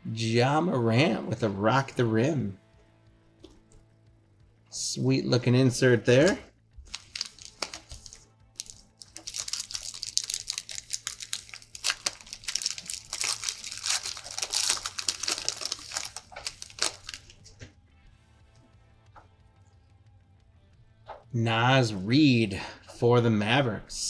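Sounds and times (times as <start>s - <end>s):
wrapper crinkling and tearing: 6.2s - 17.6s.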